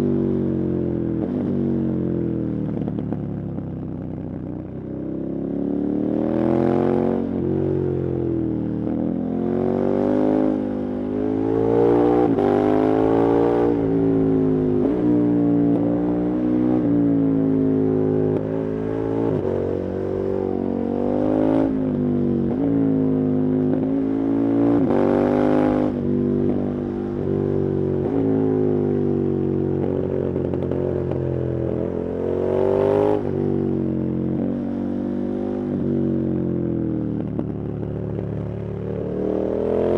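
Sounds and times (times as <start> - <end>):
motorcycle engine revving: 37.2 - 39.9.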